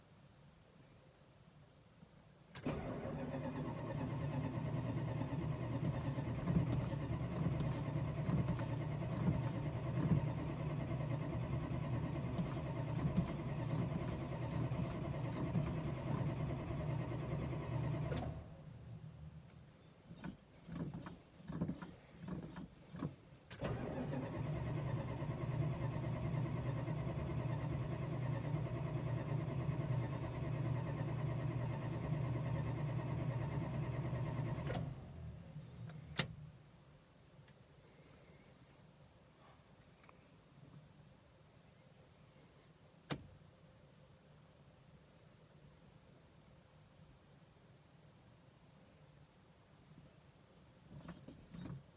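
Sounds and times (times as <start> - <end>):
starter cranking car engine: 2.6 - 19.0, 20.2 - 36.4.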